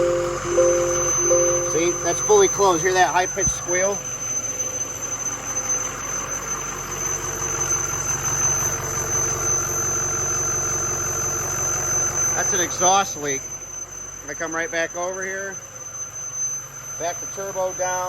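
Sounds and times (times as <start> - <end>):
diesel engine running: 0.0 - 11.6
high-pitched exhaust leak squeal: 0.0 - 18.0.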